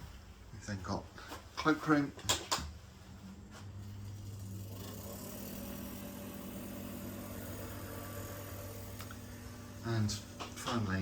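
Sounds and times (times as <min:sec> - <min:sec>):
low mechanical hum: 0:02.7 - 0:11.0.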